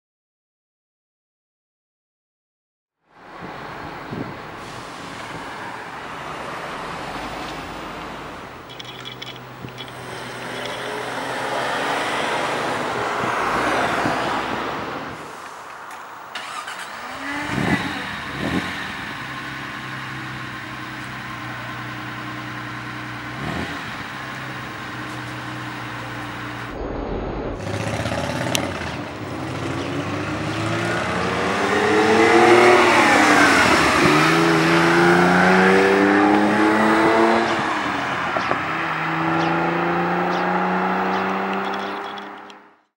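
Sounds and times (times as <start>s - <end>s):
sports car engine revving: 16.4s - 26.8s, 27.6s - 42.5s.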